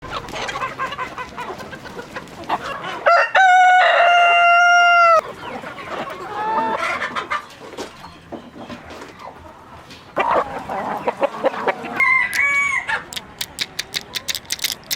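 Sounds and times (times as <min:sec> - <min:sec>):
chickens clucking: 0:00.0 - 0:14.9
rooster crowing loudly: 0:03.0 - 0:05.2, 0:12.0 - 0:13.0.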